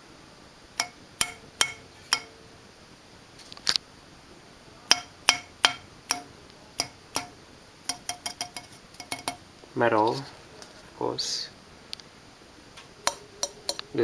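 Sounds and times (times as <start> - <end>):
metallic clinks of tapping: 0.8 - 2.4, 4.9 - 9.4.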